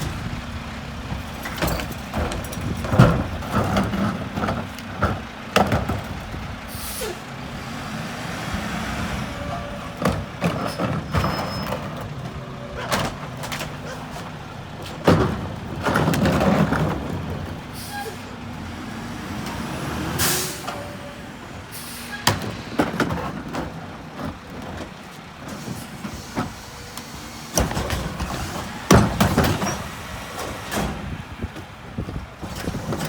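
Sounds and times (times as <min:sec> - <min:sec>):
garbage truck running: 0:00.0 - 0:33.0
clattering: 0:10.0 - 0:17.6.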